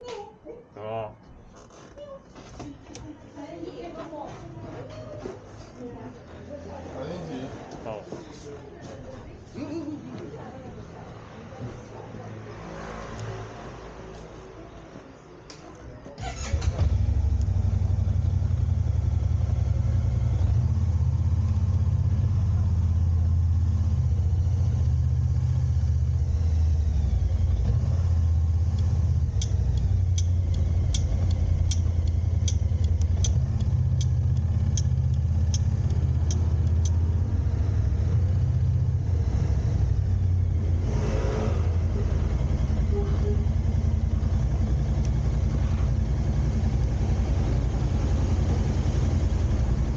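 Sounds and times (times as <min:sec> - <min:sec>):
car engine and road rumble: 0:01.3 - 0:49.9
regular ticking: 0:28.3 - 0:39.0.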